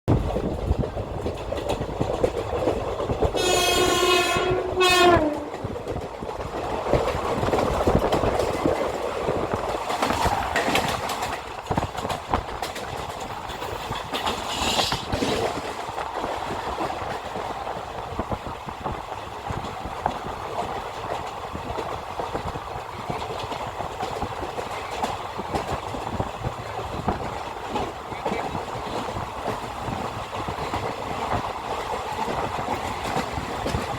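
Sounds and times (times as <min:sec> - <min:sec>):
train rumbling on rails: 0:00.1 - 0:33.9
train horn blast: 0:03.4 - 0:05.6.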